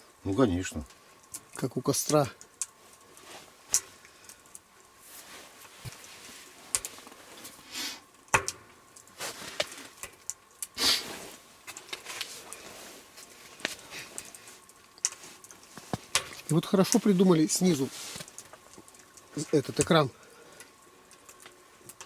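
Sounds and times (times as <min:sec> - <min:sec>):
firewood crackling and popping: 0:00.0 - 0:22.0
sharp wood snaps: 0:08.2 - 0:10.8.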